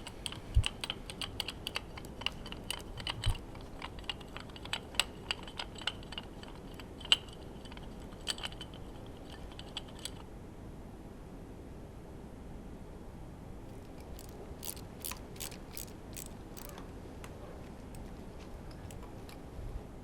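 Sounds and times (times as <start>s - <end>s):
small metal clicks and taps: 0.0s - 10.2s, 13.7s - 19.5s.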